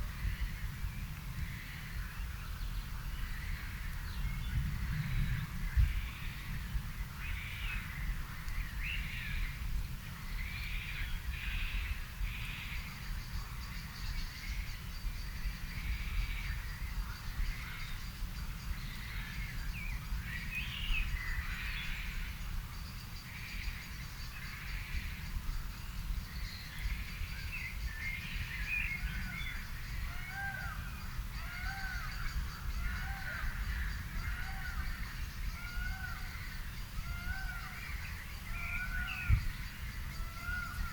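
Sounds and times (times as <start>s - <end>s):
birds singing and calling: 0.0s - 40.9s.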